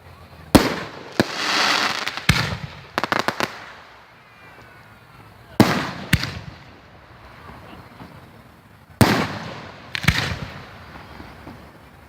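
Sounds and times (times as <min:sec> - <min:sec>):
firework cracks: 0:00.0 - 0:12.0
loud firework bang: 0:02.1 - 0:03.5, 0:09.0 - 0:11.7.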